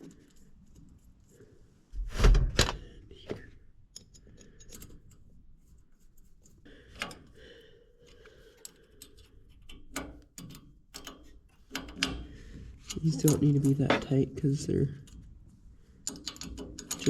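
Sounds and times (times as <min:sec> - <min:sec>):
metal clicks and taps: 0:03.9 - 0:05.2, 0:08.0 - 0:14.2, 0:16.0 - 0:17.0.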